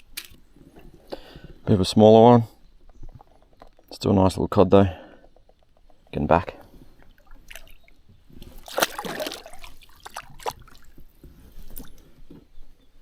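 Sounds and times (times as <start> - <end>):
water splashing: 7.0 - 11.1.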